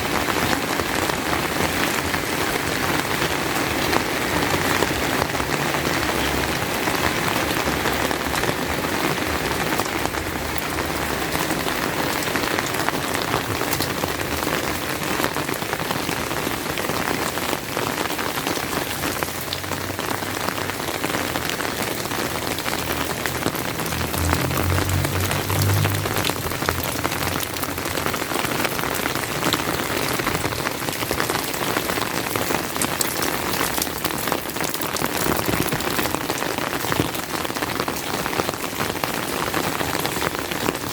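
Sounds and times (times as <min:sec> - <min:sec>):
raindrops ticking: 0:00.0 - 0:40.9
steady rain falling: 0:00.0 - 0:40.9
low rumble: 0:22.5 - 0:29.3.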